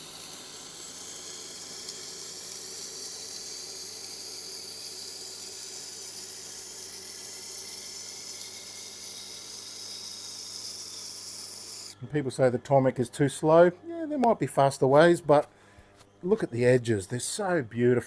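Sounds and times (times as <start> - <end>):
grinder motor hum: 0.0 - 12.0
knife hissing on wet grinding stone: 0.0 - 12.0.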